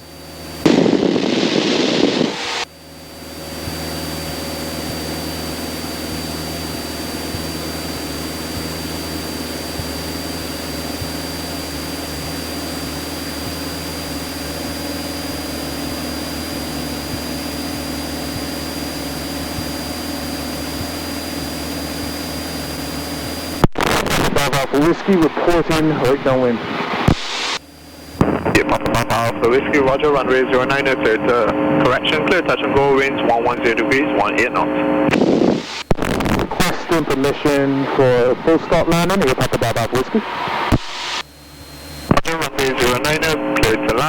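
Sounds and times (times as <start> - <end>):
aircraft engine and propeller droning: 0.0 - 44.0
loud rush of noise: 0.5 - 2.7, 23.6 - 28.9, 34.4 - 41.3.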